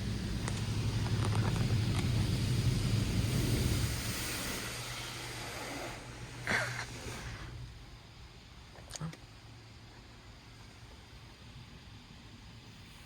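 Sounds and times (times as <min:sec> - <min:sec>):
car wash spraying water: 0:00.0 - 0:08.1
low hum: 0:00.0 - 0:13.0.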